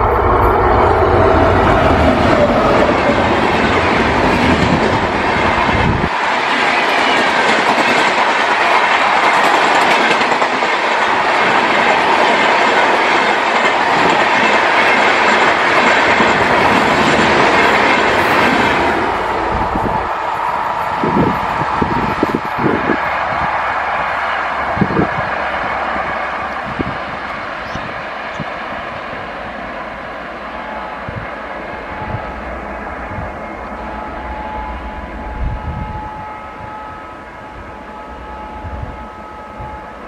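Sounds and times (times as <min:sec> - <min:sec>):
train wheels clickety-clack: 0:01.2 - 0:19.2.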